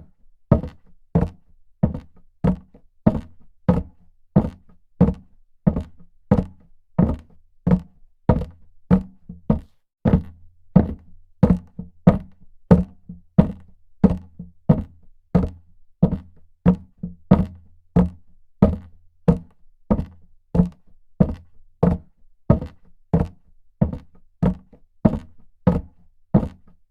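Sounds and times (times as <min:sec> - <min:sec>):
footsteps on hard floor: 0:08.3 - 0:11.0.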